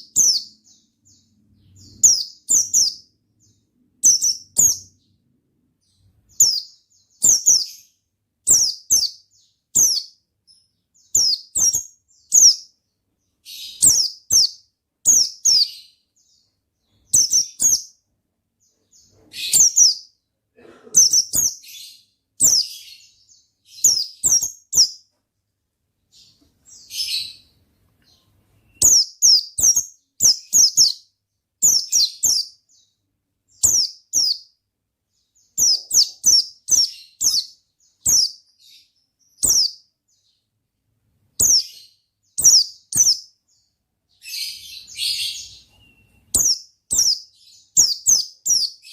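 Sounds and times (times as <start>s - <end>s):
bird singing high chirping phrases: 0.0s - 20.3s, 21.0s - 25.1s, 26.1s - 40.6s, 41.3s - 48.9s.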